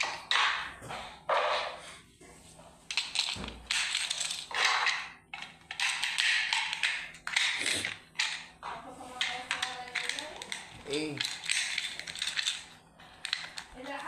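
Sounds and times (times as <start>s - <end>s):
toys rattling and clattering: 2.9s - 14.0s.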